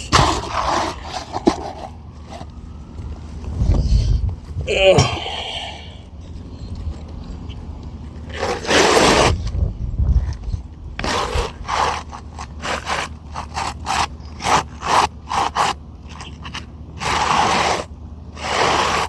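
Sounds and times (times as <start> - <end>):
shingle scraping on roof: 0.0 - 2.5, 8.2 - 9.6, 11.0 - 19.0.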